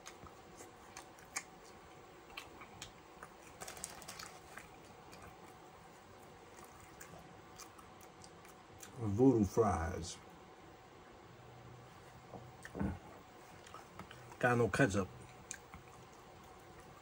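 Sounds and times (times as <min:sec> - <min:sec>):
wet chewing: 0:00.0 - 0:09.0, 0:12.5 - 0:14.4, 0:15.2 - 0:17.0.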